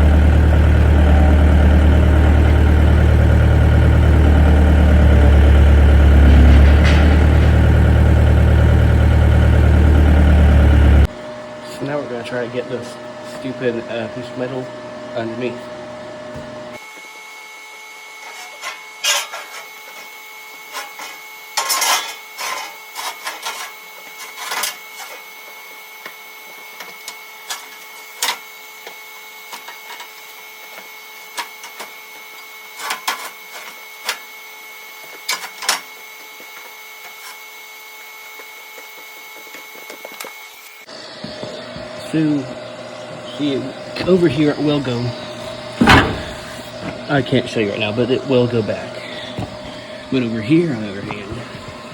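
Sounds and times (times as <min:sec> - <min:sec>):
steel clanking and scraping: 0:00.1 - 0:11.1, 0:18.3 - 0:19.9, 0:20.7 - 0:25.2, 0:44.0 - 0:49.6.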